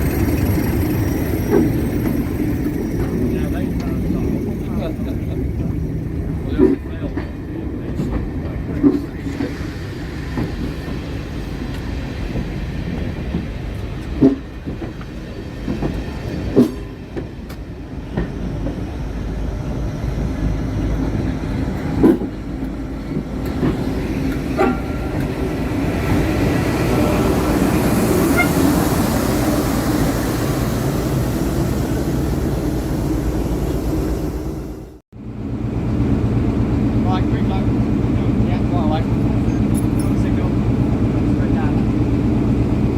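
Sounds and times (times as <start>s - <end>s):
diesel train engine drone: 0.0s - 42.9s.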